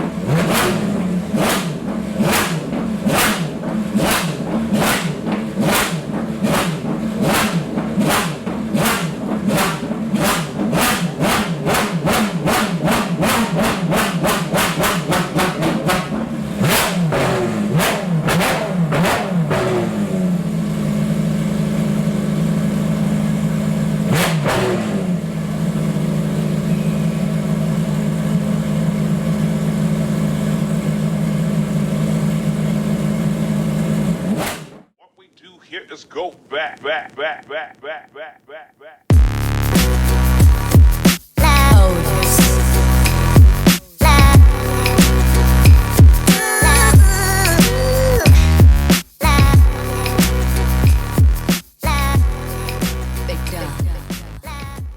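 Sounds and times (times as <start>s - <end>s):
sports car engine bangs: 0.0s - 34.9s.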